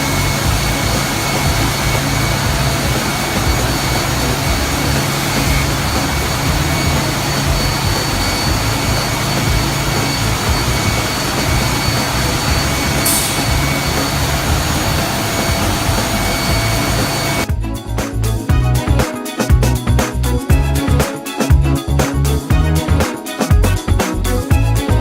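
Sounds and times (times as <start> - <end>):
sanding machine whining: 0.0 - 17.5.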